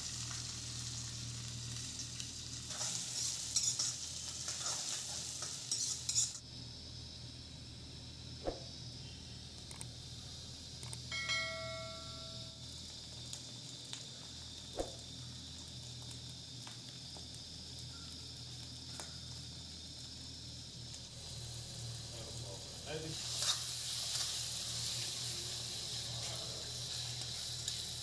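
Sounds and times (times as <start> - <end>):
onions sizzling in oil: 0.0 - 28.0
small clicks: 9.6 - 9.9, 10.8 - 11.1
short metallic ring: 11.1 - 12.6.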